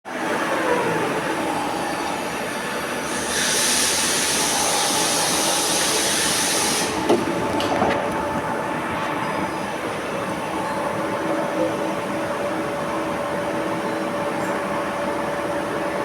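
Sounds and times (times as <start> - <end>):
milling machine running: 0.4 - 16.0
hiss: 3.0 - 7.0.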